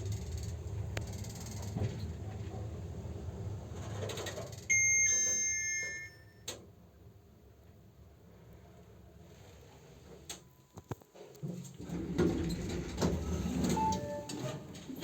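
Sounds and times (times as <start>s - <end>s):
two-tone electronic chime: 4.7s - 6.5s.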